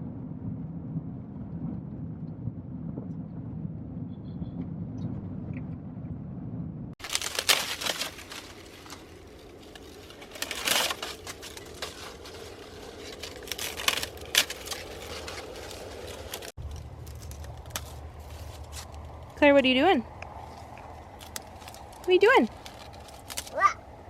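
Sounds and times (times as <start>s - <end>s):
low rumble: 0.0s - 24.0s
dry corn plants rustling: 7.0s - 23.9s.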